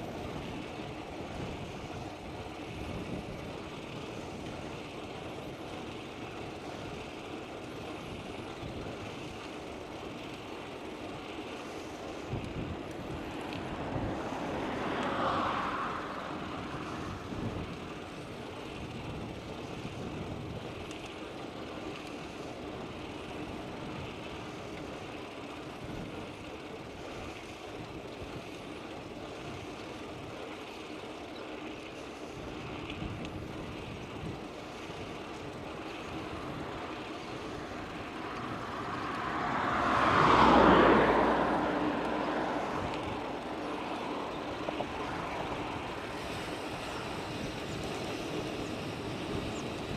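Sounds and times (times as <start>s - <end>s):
outdoor background noise: 0.0s - 49.9s
motor vehicle passing close by: 13.2s - 18.2s, 37.4s - 47.0s.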